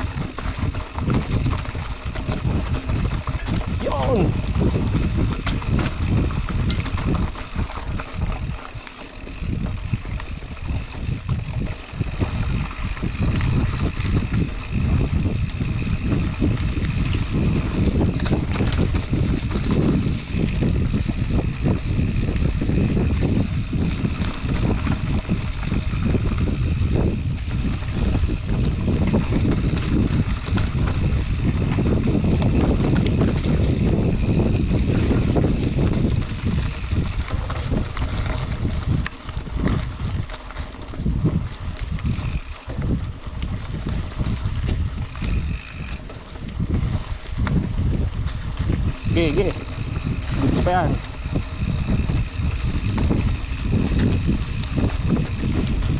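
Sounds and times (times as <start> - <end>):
bike rattles and clicks: 0.0 - 55.9
tyres rumbling on dirt: 0.0 - 55.9
wind buffeting microphone: 0.0 - 55.9.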